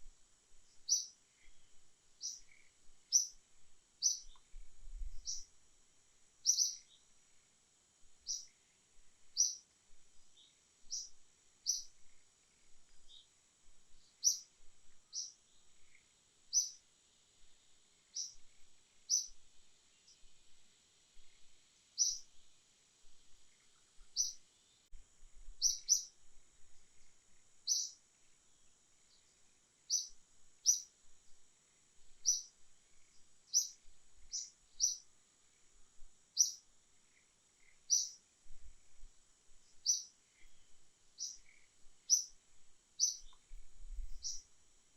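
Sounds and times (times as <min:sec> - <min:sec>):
faint high-pitched hum: 0:00.0 - 0:44.9
bird chirping: 0:00.7 - 0:05.6, 0:06.4 - 0:07.1, 0:08.2 - 0:08.7, 0:09.3 - 0:09.7, 0:10.3 - 0:16.8, 0:18.1 - 0:20.3, 0:21.2 - 0:22.3, 0:23.4 - 0:24.8, 0:25.6 - 0:26.2, 0:27.0 - 0:28.0, 0:29.0 - 0:30.9, 0:32.2 - 0:35.6, 0:36.3 - 0:38.2, 0:39.6 - 0:42.4, 0:43.0 - 0:44.5.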